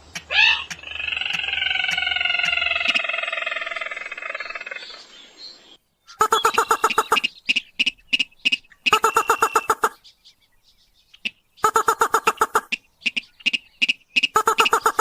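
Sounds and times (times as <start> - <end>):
rail calling harsh repeated notes: 6.2 - 10.0, 11.6 - 15.0.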